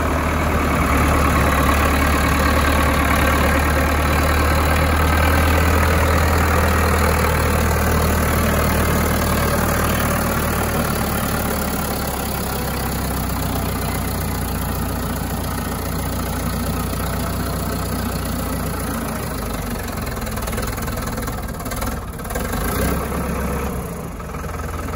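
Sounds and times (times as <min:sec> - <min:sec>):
tractor engine running: 0:00.0 - 0:24.9.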